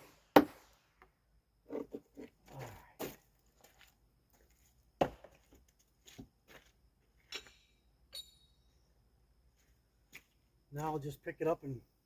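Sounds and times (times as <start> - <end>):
high metallic ring: 7.3 - 8.8.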